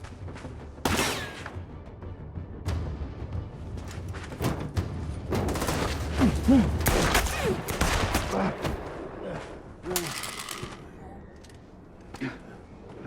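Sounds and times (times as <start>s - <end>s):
rapid gunshots: 5.5s - 9.0s.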